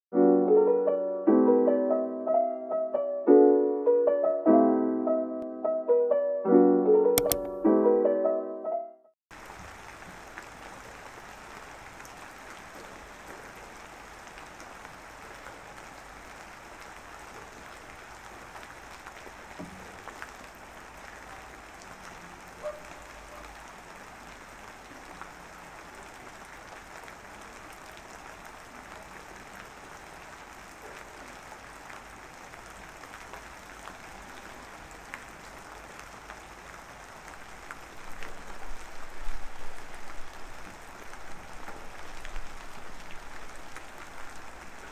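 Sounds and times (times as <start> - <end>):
steady rain: 9.3 - 44.9.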